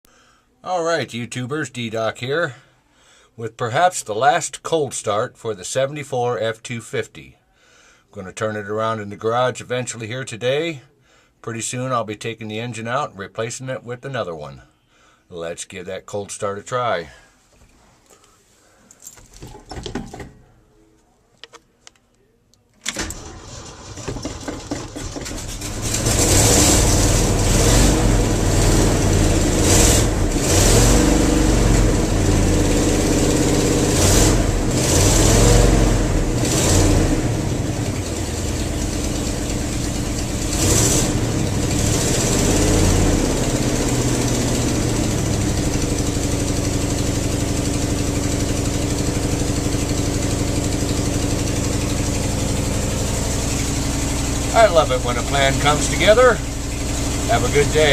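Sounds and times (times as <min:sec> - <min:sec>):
engine cranking: 0:22.8 - 0:29.0
engine idling: 0:23.0 - 0:57.9
engine revving: 0:23.0 - 0:57.9.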